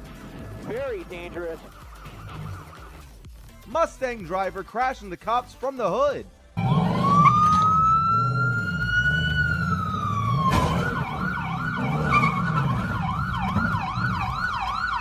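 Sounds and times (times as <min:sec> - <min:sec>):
police siren wailing and yelping: 0:01.5 - 0:03.1, 0:06.6 - 0:15.0.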